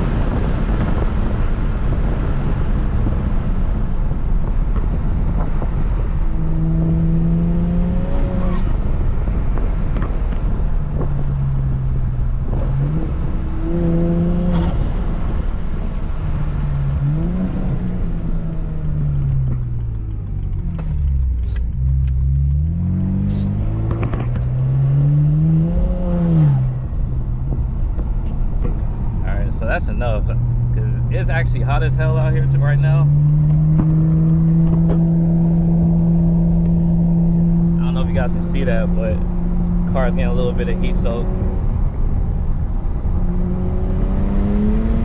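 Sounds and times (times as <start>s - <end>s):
car engine revving: 0.0s - 45.0s
road noise: 0.0s - 45.0s
rushing wind: 0.0s - 45.0s.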